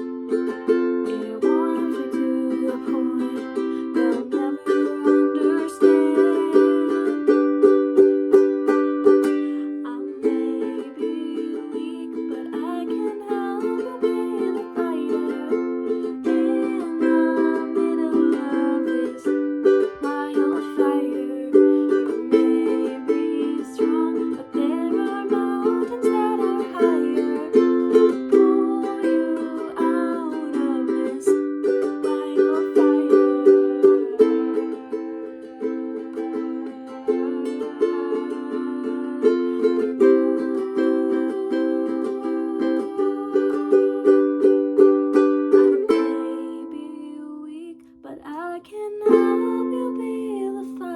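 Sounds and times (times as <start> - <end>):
ukulele strumming chords: 0.0 - 50.9.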